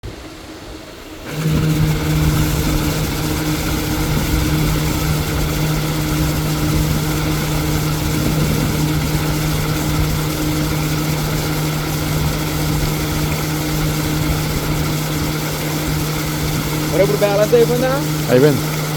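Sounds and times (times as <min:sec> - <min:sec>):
motor running with hum: 0:00.8 - 0:18.9.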